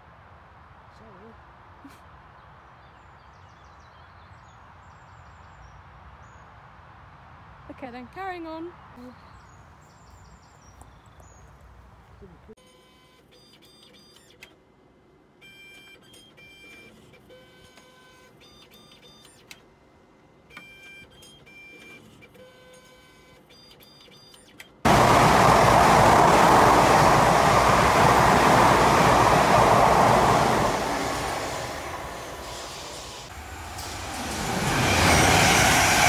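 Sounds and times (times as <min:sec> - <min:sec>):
train rushing past: 0:24.9 - 0:36.0.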